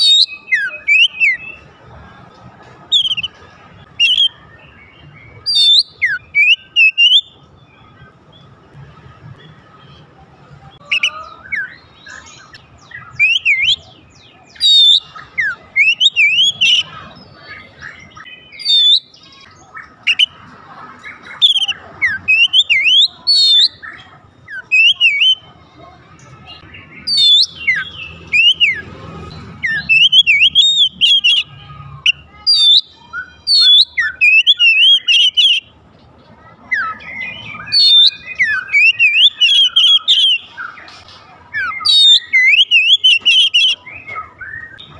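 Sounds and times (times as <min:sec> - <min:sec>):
bird singing whistled notes: 0:00.0 - 0:01.6, 0:02.9 - 0:07.9, 0:10.8 - 0:20.4, 0:21.3 - 0:25.4, 0:26.5 - 0:28.9, 0:29.6 - 0:31.5, 0:32.1 - 0:35.7, 0:36.7 - 0:40.9, 0:41.5 - 0:44.9.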